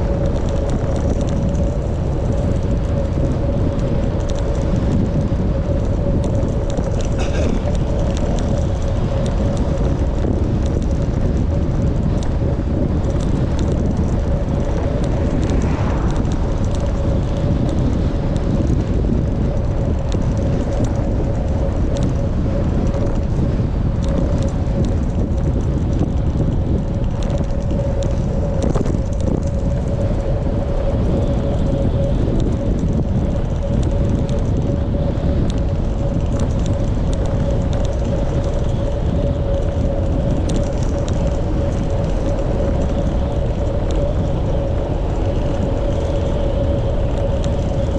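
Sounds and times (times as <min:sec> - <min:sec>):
constant mid-pitched hum: 0:00.0 - 0:47.9
wind buffeting microphone: 0:00.0 - 0:47.9.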